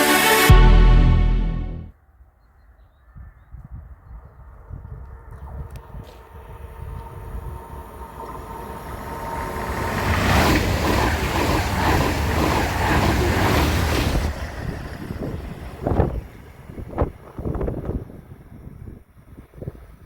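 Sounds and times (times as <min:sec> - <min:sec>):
train passing at speed: 0:00.0 - 0:01.9, 0:05.1 - 0:18.5.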